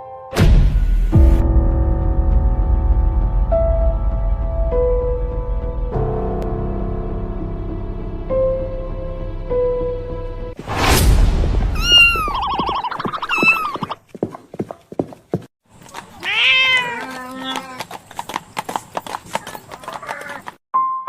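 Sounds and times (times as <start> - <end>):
cats meowing: 11.8 - 12.6, 13.2 - 13.9, 16.1 - 17.9.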